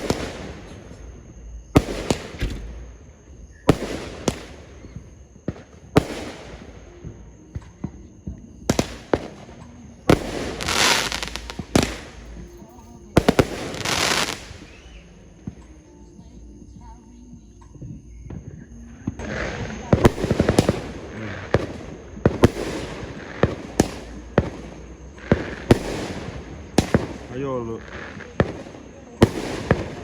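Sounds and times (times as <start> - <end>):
fireworks bangs: 0.0 - 15.9, 17.8 - 30.0
fireworks crackling: 0.0 - 16.0, 19.0 - 30.0.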